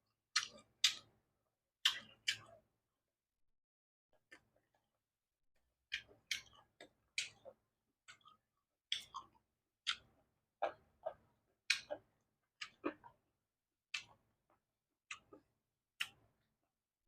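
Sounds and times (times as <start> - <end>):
chewing crunchy vegetables: 0.3 - 1.2, 1.8 - 2.7, 5.8 - 13.3, 13.9 - 16.4.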